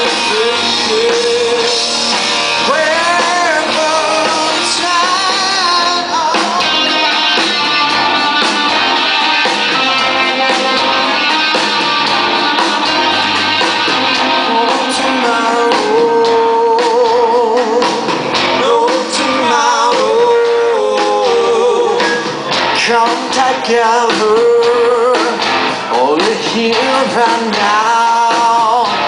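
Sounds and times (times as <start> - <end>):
live rock band playing: 0.0 - 29.0
wavering held lead guitar note: 6.4 - 17.1.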